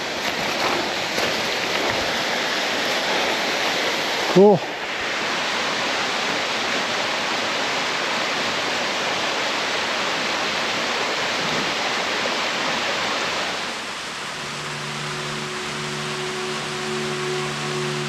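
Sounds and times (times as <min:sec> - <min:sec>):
waterfall rushing: 0:00.0 - 0:18.0
background music with held notes: 0:14.1 - 0:18.0.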